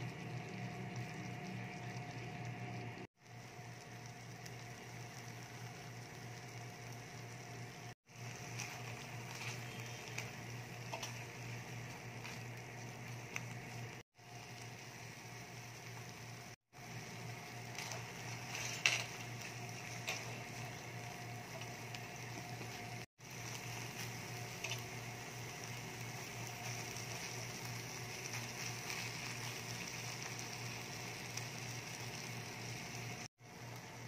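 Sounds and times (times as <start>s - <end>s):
food sizzling softly in a pan: 0.0s - 34.0s
spatula scraping a pan: 17.8s - 19.2s.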